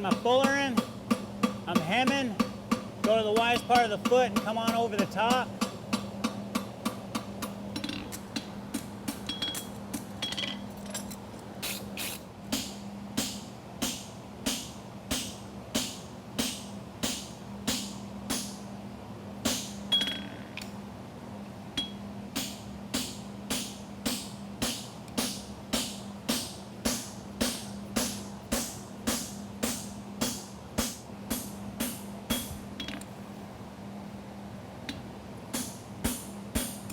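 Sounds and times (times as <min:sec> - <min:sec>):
hammer striking horseshoe on anvil: 0:00.0 - 0:08.5, 0:12.6 - 0:18.6, 0:21.8 - 0:33.0
steady low hum: 0:00.0 - 0:36.9.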